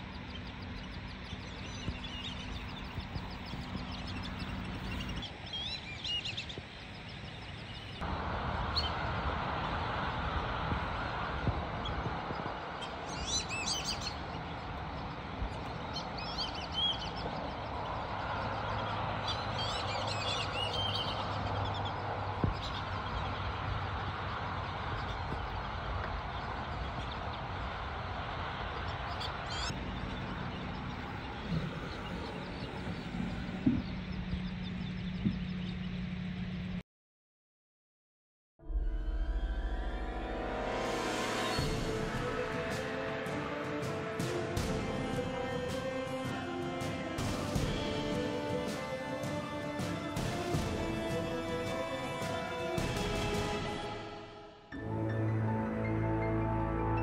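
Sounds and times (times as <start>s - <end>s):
high wavering bird chirps: 0.0s - 8.1s, 11.8s - 23.4s
rushing background noise: 0.0s - 36.8s, 39.4s - 57.0s.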